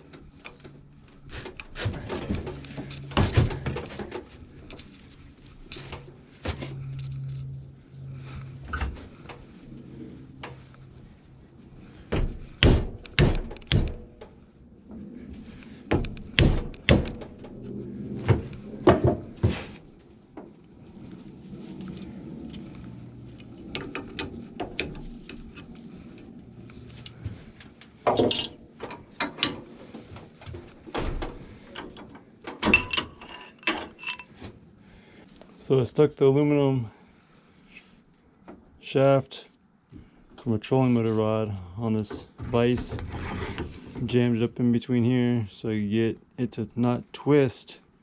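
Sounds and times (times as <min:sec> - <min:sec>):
metal tools and vise clanking: 0:28.0 - 0:30.1, 0:31.4 - 0:34.4, 0:42.2 - 0:44.2.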